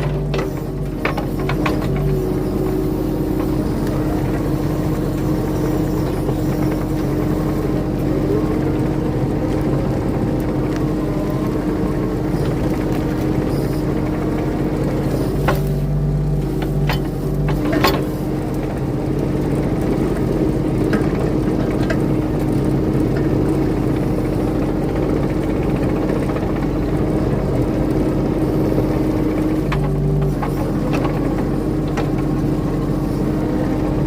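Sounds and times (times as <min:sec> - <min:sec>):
diesel engine under load: 0:00.0 - 0:34.0.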